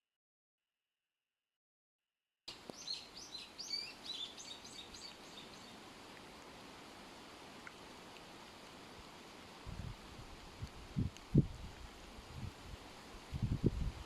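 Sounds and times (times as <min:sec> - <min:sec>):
background hiss: 0:02.5 - 0:14.0
birds chirping rapidly: 0:02.6 - 0:05.8.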